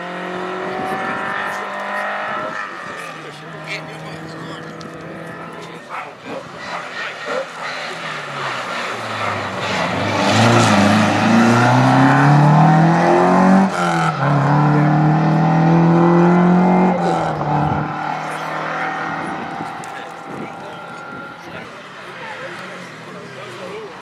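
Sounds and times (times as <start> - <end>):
rally car accelerating past: 6.6 - 20.3.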